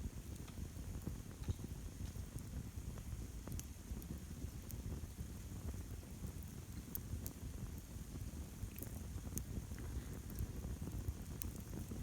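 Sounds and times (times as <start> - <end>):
campfire crackling: 8.6 - 12.0.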